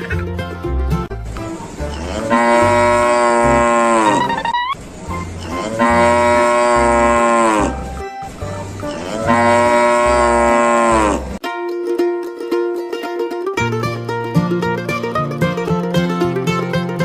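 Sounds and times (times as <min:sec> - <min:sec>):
cow mooing: 0:01.8 - 0:04.5, 0:05.4 - 0:08.0, 0:08.8 - 0:11.4.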